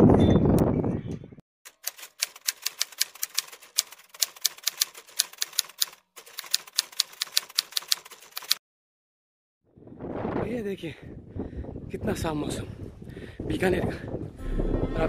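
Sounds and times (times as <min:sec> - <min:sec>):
typewriter keys clacking: 0:01.7 - 0:08.6.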